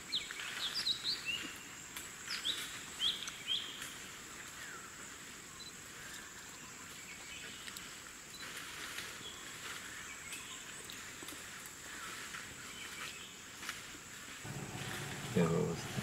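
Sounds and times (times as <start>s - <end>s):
light hiss: 13.6s - 16.0s
birds chirping: 14.4s - 16.0s
steady high-pitched tone: 14.5s - 16.0s.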